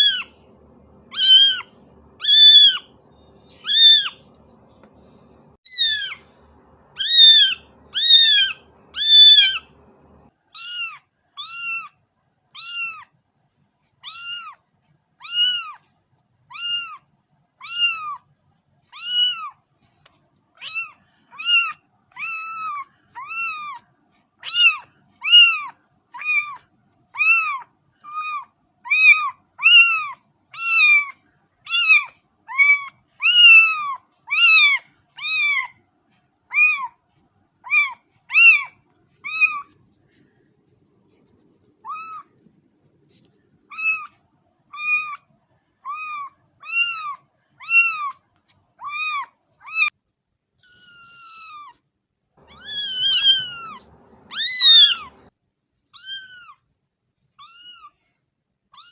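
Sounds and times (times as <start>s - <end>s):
kitten meowing: 0.0s - 0.3s, 1.0s - 4.4s, 5.7s - 6.3s, 6.9s - 9.8s, 10.6s - 11.9s, 12.6s - 13.1s, 14.0s - 14.6s, 15.2s - 15.8s, 16.5s - 17.0s, 17.6s - 18.2s, 19.0s - 19.6s, 20.6s - 23.8s, 24.4s - 26.6s, 27.2s - 35.7s, 36.5s - 36.9s, 37.6s - 39.8s, 41.8s - 42.4s, 43.7s - 45.2s, 45.9s - 48.2s, 48.8s - 49.9s, 50.6s - 51.8s, 52.4s - 55.3s, 55.9s - 56.6s, 57.4s - 58.0s.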